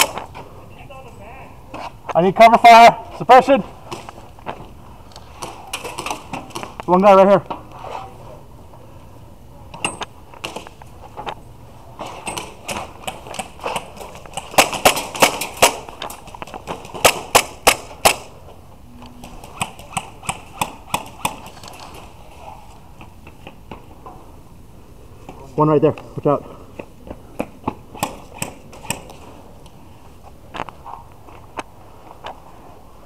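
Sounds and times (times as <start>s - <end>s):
airsoft guns firing: 5.4s - 6.8s, 12.1s - 18.4s, 19.2s - 22.1s, 27.4s - 29.2s.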